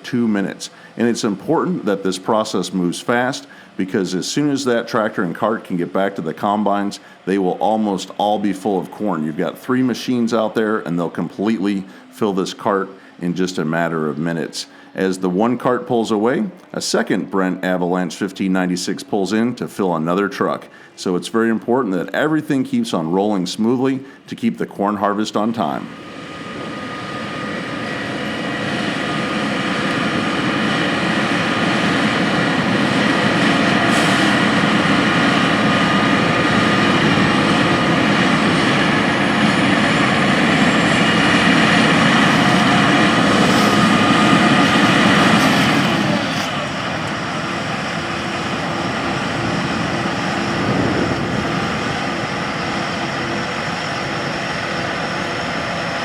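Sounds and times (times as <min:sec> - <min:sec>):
tractor engine pulling hard: 0:00.0 - 0:56.0.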